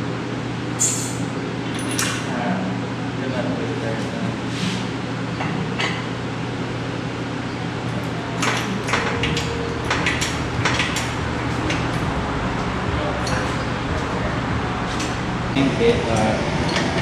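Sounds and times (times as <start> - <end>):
steady low hum: 0.0 - 17.0
metal chain clanking and rattling: 1.7 - 2.3.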